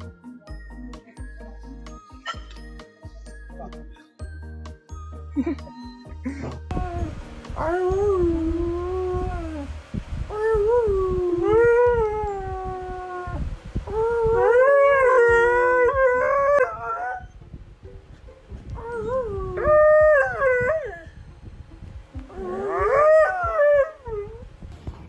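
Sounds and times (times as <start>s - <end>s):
dog howling: 6.7s - 9.7s, 10.3s - 17.4s, 18.8s - 21.1s, 22.3s - 24.4s.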